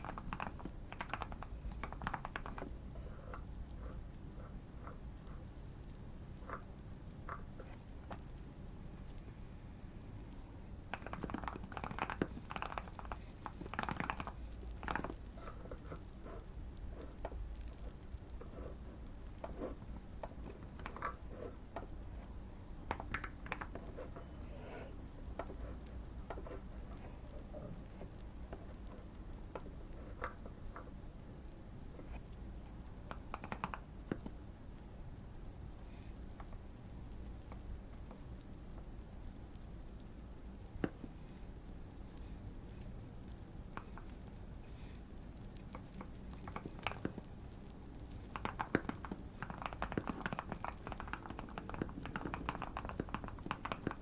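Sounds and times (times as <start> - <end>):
mechanical keyboard typing: 0.0 - 3.6, 10.9 - 21.9, 33.0 - 34.4, 48.1 - 54.0
fireplace crackling: 0.0 - 54.0.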